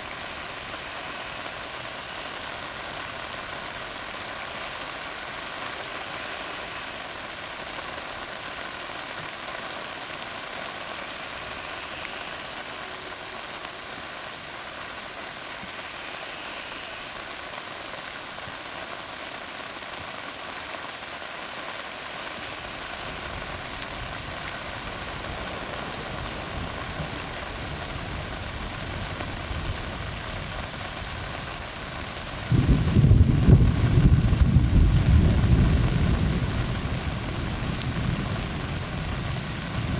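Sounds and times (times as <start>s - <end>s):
rain falling on road: 0.0s - 39.9s
thunder rumbling: 23.1s - 31.4s, 32.3s - 39.9s.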